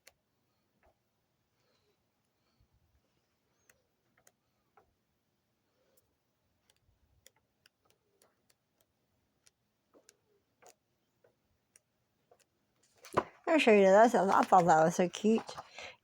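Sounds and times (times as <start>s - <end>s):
faint small clicks: 3.6s - 4.9s, 5.9s - 13.0s.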